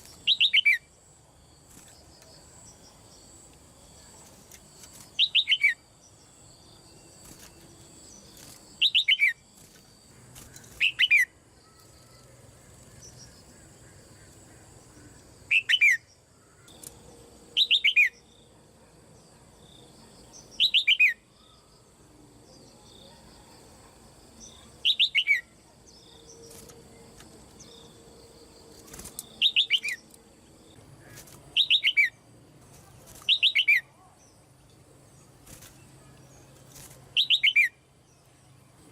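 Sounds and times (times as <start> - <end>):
bulbul calling: 28.9 - 30.1, 33.3 - 33.9.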